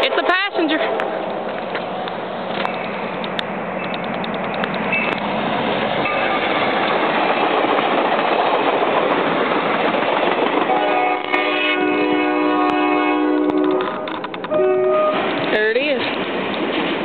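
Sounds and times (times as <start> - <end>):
train wheels on rails: 0.0 - 17.0
quick clicks: 1.7 - 5.3.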